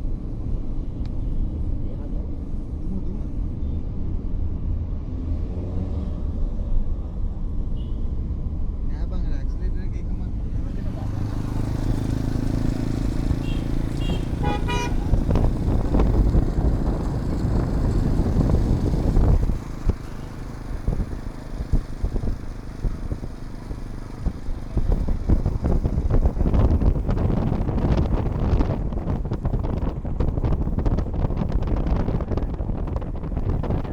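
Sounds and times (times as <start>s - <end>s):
motorcycle engines in traffic: 0.0s - 33.9s
vehicle horn tooting: 13.2s - 16.0s.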